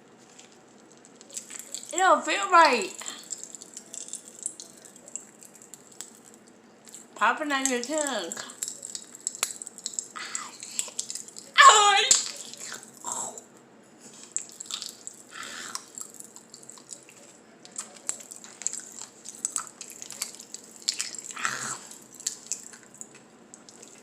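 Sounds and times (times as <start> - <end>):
popping candy crackling in mouth: 0.1 - 2.0, 2.7 - 13.5, 14.1 - 24.0
high vocal cry: 11.6 - 12.5.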